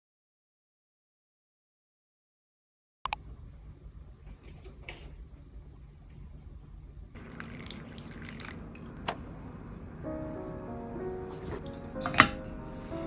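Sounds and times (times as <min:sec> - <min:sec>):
water running in sink: 0:07.2 - 0:09.4.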